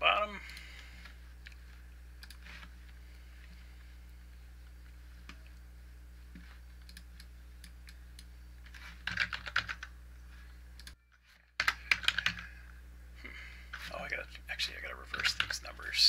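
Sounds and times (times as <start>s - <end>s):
low electrical hum: 0.0s - 16.0s
computer keyboard typing: 2.2s - 2.4s, 6.8s - 8.3s, 9.0s - 9.9s, 11.6s - 12.5s, 15.1s - 15.6s.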